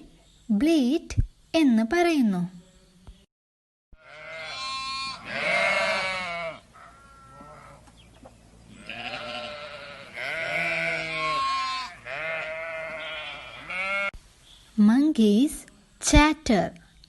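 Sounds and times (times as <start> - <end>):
sheep bleating: 4.0 - 7.8, 8.7 - 14.2.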